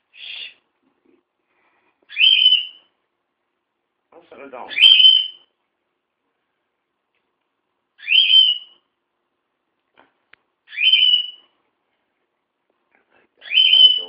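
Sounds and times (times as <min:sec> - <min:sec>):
bird whistled call: 0:02.1 - 0:02.8, 0:04.7 - 0:05.5, 0:08.0 - 0:08.8, 0:10.7 - 0:11.4, 0:13.4 - 0:14.0.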